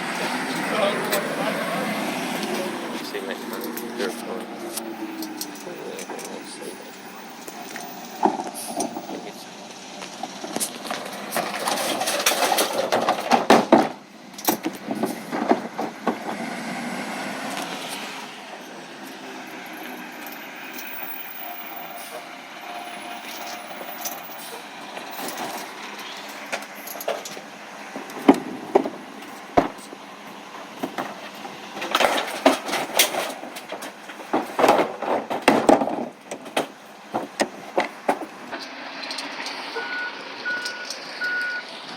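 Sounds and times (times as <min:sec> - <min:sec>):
truck engine noise: 0:00.0 - 0:41.9
clattering knocks and bangs: 0:10.2 - 0:16.5, 0:24.9 - 0:30.0, 0:30.6 - 0:38.6.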